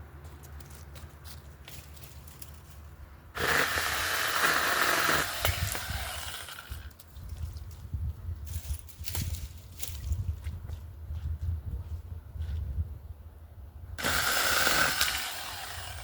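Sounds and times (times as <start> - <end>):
chainsaw chain winding down: 3.4 - 6.9, 14.0 - 16.0
chainsaw cutting a branch: 3.4 - 7.0, 14.0 - 16.0.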